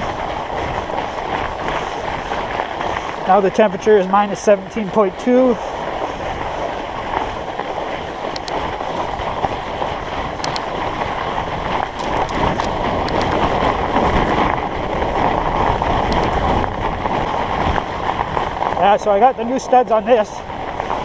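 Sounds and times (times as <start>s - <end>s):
bike tyres rolling on icy snow: 0.0s - 21.0s
wind on microphone: 0.0s - 21.0s
faint sharp clicks: 8.3s - 8.6s, 10.4s - 10.7s.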